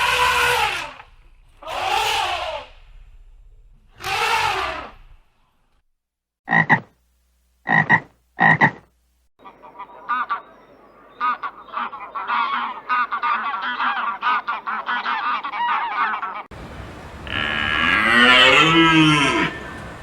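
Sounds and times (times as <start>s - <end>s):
animal calling: 1.6s - 2.8s, 9.4s - 20.0s.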